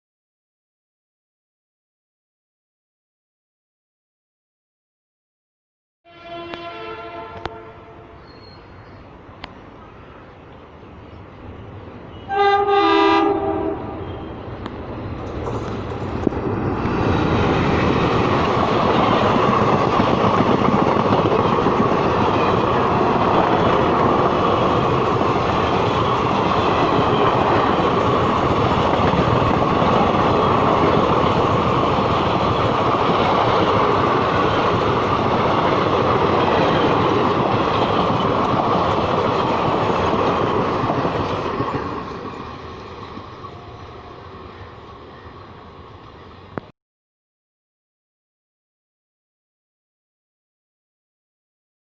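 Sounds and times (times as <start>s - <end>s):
diesel train passing at speed: 6.1s - 46.7s.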